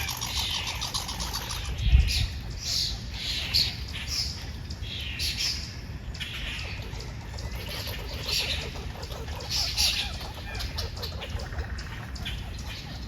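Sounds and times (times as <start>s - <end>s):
faint rapid bird chatter: 0.0s - 13.0s
bird rasping calls: 6.2s - 13.0s.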